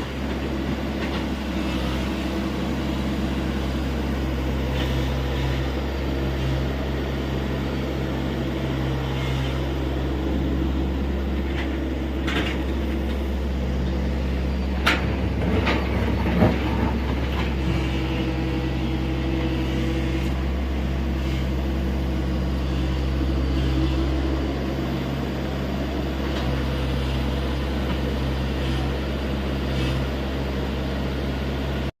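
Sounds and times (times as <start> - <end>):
excavator diesel engine running: 0.0 - 31.9.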